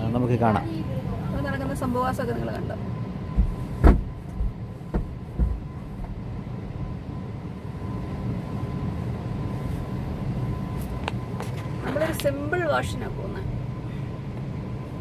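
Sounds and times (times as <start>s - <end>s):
faint machinery whine: 0.0s - 15.0s.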